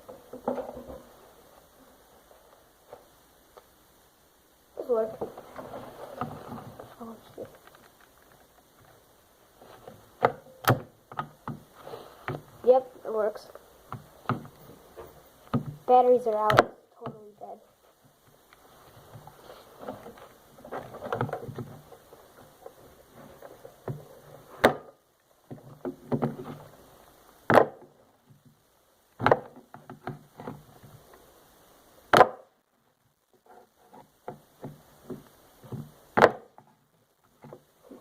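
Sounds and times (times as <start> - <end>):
plastic clattering and scraping: 0.0 - 1.2, 5.1 - 9.0, 18.8 - 24.9, 25.5 - 26.8.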